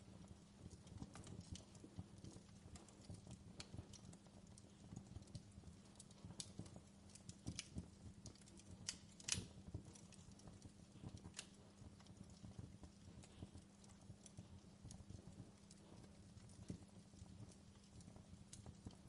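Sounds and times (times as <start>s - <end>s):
fireplace crackling: 0.0s - 19.0s
low steady hum: 0.0s - 19.0s.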